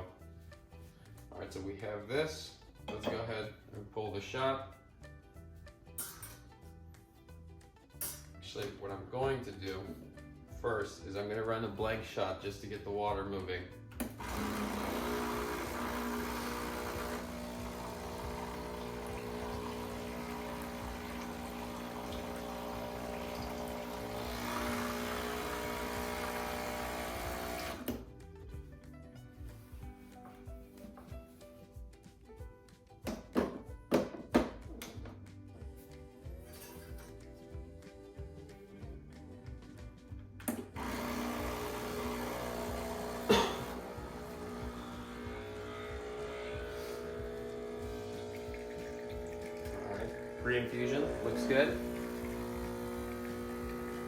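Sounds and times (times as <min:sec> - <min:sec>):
espresso machine pump humming: 0:14.0 - 0:28.0, 0:40.8 - 0:54.0
hot water running: 0:14.0 - 0:28.0, 0:40.8 - 0:54.0
pump switching off with a click: 0:14.0 - 0:28.1, 0:40.4 - 0:54.0.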